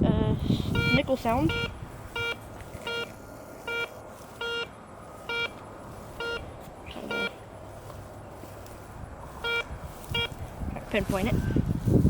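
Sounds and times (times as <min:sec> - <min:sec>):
metal detector beeping: 0:00.4 - 0:07.4, 0:09.4 - 0:10.4.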